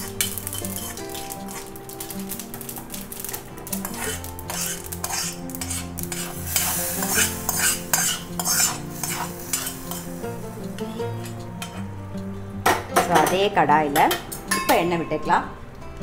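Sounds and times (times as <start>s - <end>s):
spoon stirring in cooking pot: 3.7s - 11.8s.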